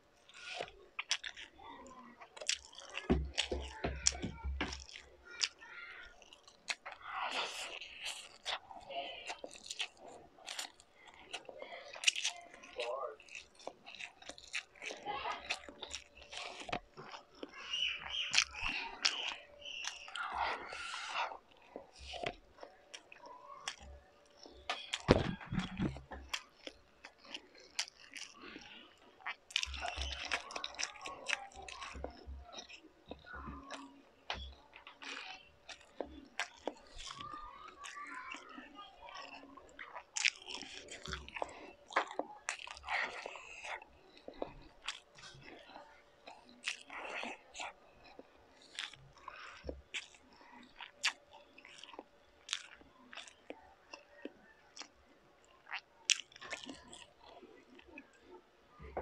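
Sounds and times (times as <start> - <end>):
person chewing food: 0.0 - 59.0
wet mouth clicks: 6.2 - 8.7, 13.2 - 37.2, 39.2 - 58.1.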